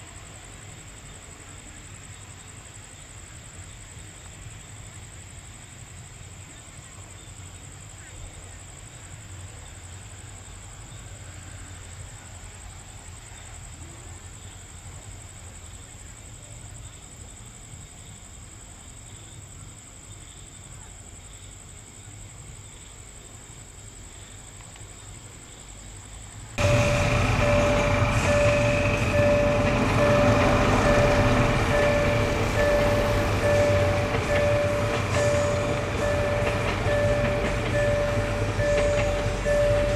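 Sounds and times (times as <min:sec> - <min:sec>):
train rumble: 0:26.5 - 0:39.9
pulsed repeating tone: 0:26.6 - 0:39.9
thin high whine: 0:26.6 - 0:39.9.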